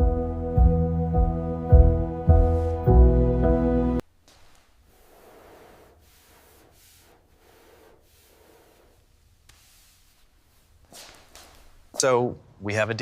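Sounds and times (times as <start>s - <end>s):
music of sustained chords: 0.0s - 4.0s
soft rustling: 4.0s - 12.0s.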